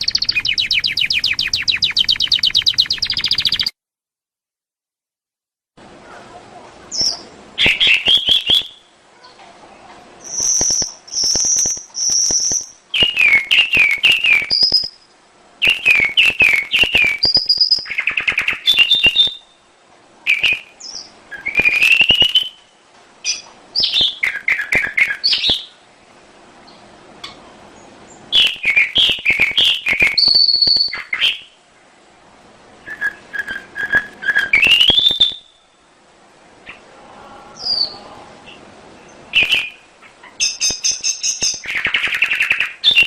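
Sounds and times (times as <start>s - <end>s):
canary singing trills and chirps: 0.0s - 3.7s, 6.9s - 9.4s, 10.2s - 19.7s, 20.3s - 25.7s, 27.8s - 31.6s, 32.8s - 35.8s, 37.6s - 43.0s.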